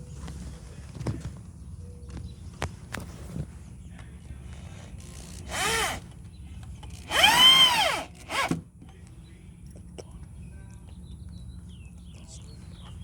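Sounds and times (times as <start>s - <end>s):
power drill driving screws: 5.0s - 6.1s, 6.9s - 8.6s.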